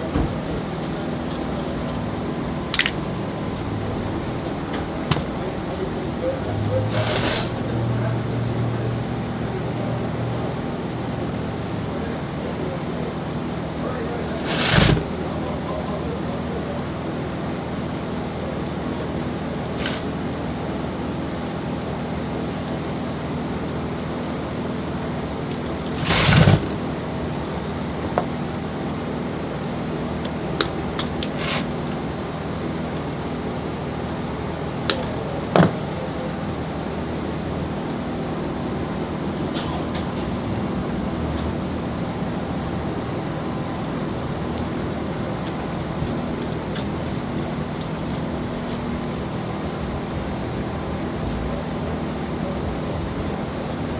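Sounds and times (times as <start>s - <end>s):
mechanical hum: 0.0s - 53.9s
loud clatter: 25.8s - 26.8s.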